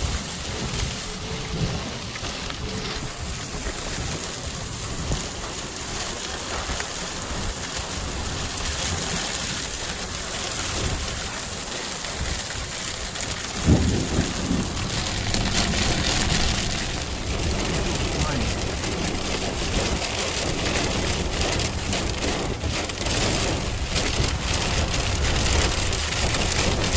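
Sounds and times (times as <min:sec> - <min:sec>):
heavy rain pouring: 0:00.0 - 0:26.9
low rumbling: 0:10.6 - 0:26.9.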